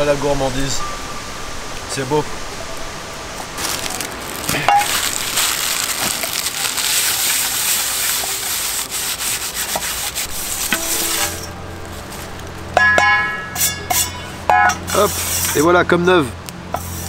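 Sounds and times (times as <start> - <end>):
pan being scrubbed: 6.1 - 12.3, 13.5 - 15.8, 16.7 - 17.0.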